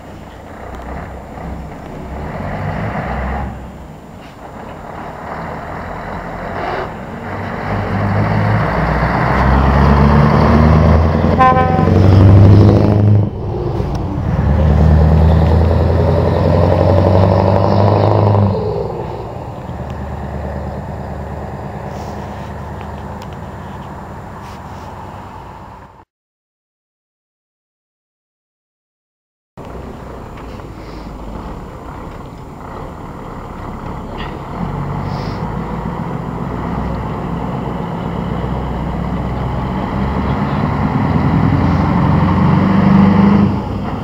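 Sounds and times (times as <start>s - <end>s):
truck engine pulling away: 0.0s - 26.0s, 29.6s - 44.0s
truck horn toot: 11.2s - 12.3s.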